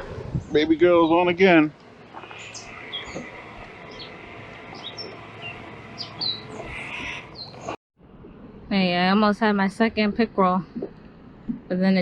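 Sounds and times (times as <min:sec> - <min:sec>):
small birds chirping: 0:02.1 - 0:07.8.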